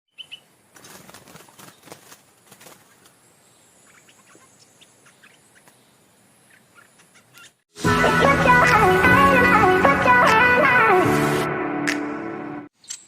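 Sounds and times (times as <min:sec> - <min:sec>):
faint bird chirps: 0:00.1 - 0:00.5, 0:02.8 - 0:07.6.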